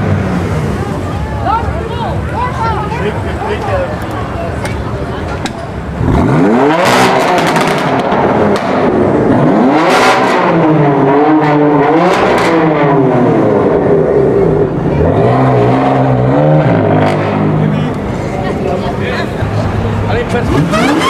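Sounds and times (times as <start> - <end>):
car engines revving and accelerating: 0.0 - 21.0.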